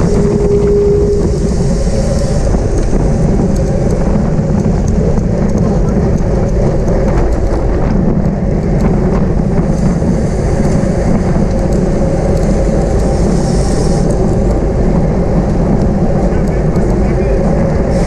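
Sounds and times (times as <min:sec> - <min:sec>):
wind buffeting microphone: 0:00.0 - 0:18.0
higher hiss: 0:13.1 - 0:14.2.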